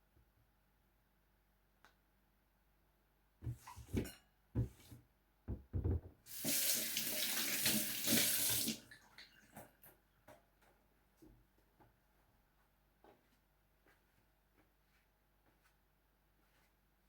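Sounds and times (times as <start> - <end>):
knocks and clunks of handling: 3.4 - 6.2
kitchen tap running: 6.3 - 9.0.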